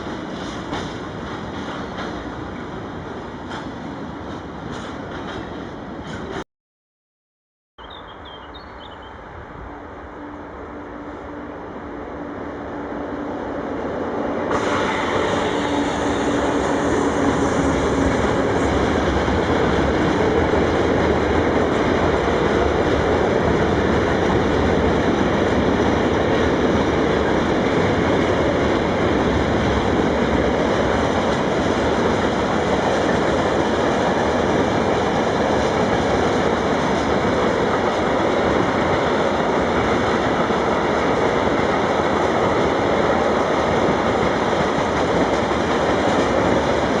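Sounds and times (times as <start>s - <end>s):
freight train rumbling past: 0.0s - 6.4s, 7.8s - 47.0s
train wheels clickety-clack: 0.0s - 6.4s, 14.4s - 47.0s.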